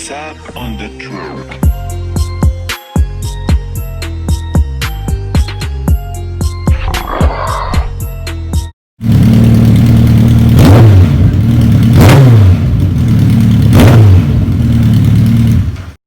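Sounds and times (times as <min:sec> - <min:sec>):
motorcycle engine idling loud: 0:09.0 - 0:16.0.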